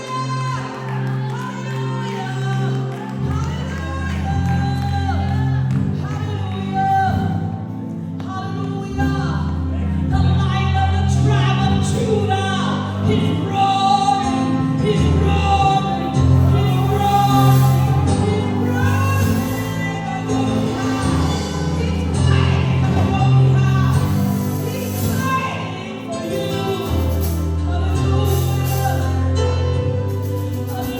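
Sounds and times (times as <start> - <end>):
gospel band playing: 0.0 - 30.9
bass notes: 3.3 - 30.9
people singing: 11.2 - 29.4.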